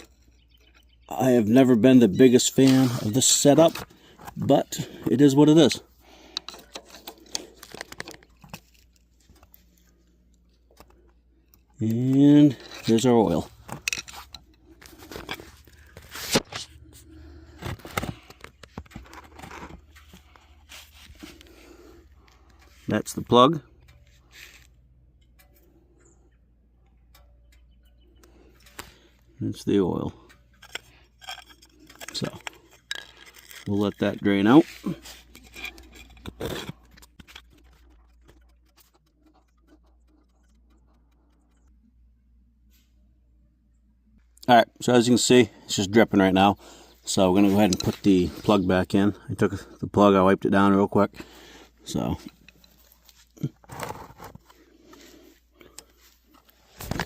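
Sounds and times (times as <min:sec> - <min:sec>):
knocks and scrapes: 0:10.6 - 0:24.8, 0:30.4 - 0:41.7, 0:51.9 - 0:55.3.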